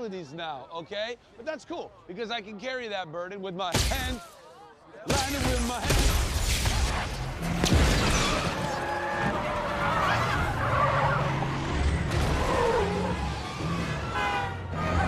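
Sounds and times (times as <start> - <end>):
tyres screeching: 7.4 - 15.0.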